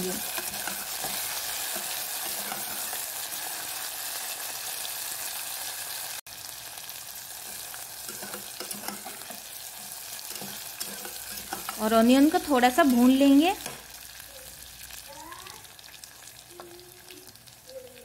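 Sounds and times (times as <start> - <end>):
spatula scraping pot: 0.0 - 3.8, 7.4 - 12.7
onion sizzling in hot oil: 0.0 - 18.0.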